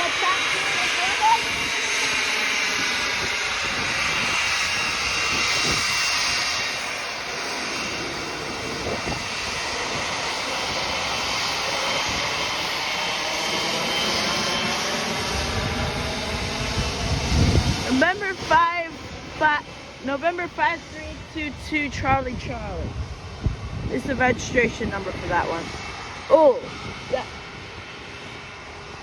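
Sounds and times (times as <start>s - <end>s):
jet engines roaring past: 0.0s - 29.0s.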